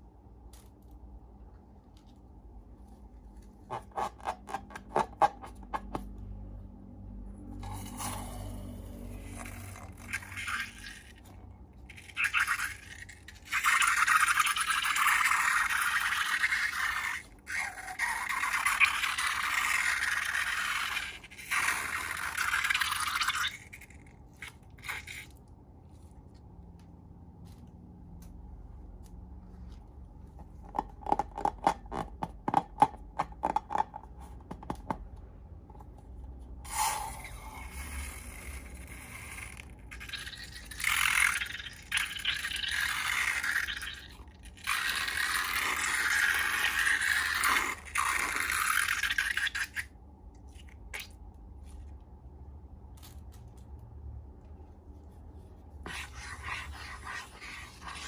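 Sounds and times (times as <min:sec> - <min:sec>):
slime scraping and stirring: 0:07.6 - 0:26.5, 0:54.8 - 0:58.0.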